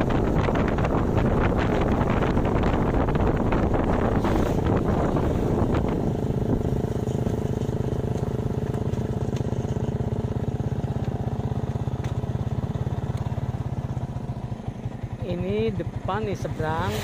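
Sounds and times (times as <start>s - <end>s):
wind buffeting microphone: 0.0s - 8.1s
small motorcycle engine running: 0.0s - 17.0s.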